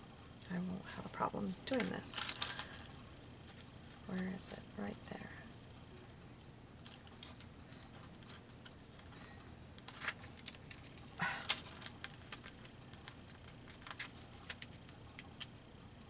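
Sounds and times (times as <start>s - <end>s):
paper rustling: 1.4s - 4.3s, 6.8s - 15.5s.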